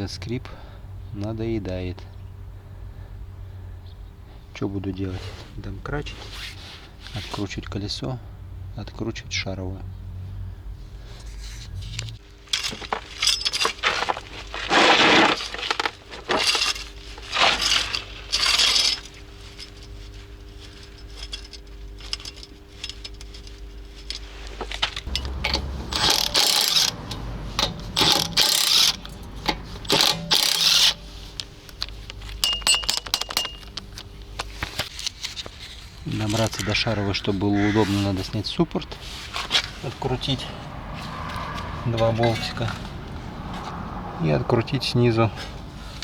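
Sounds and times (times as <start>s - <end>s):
metal tools clinking and scraping: 11.1s - 46.0s.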